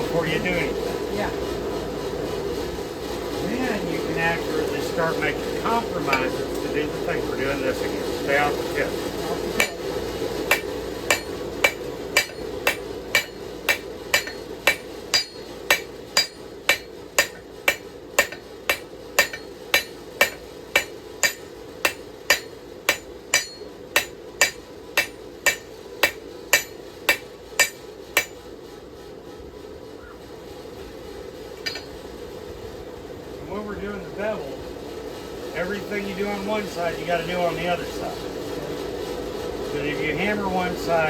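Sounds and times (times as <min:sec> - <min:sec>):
hammer striking steel on anvil: 0:05.5 - 0:06.7, 0:09.5 - 0:28.4, 0:31.6 - 0:32.0.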